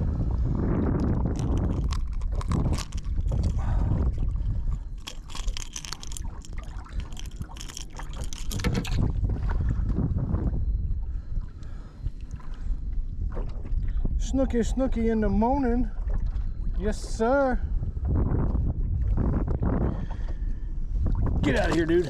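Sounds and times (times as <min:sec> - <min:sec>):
wind buffeting microphone: 0:00.0 - 0:22.0
water splashes: 0:01.0 - 0:09.7.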